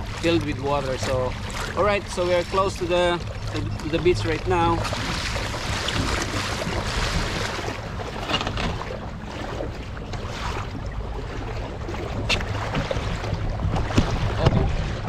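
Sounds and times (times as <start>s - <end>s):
water sloshing around kayak: 0.0s - 15.0s.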